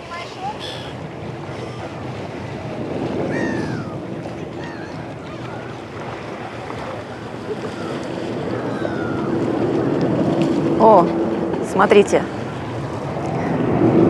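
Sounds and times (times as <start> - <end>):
gulls calling: 0.0 - 10.2
waves breaking on shore: 0.0 - 14.0
wind on microphone: 0.0 - 14.0.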